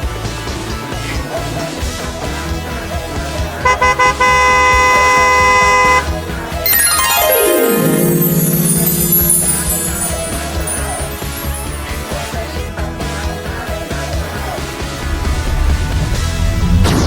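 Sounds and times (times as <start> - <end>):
upbeat background music: 6.7 - 11.9.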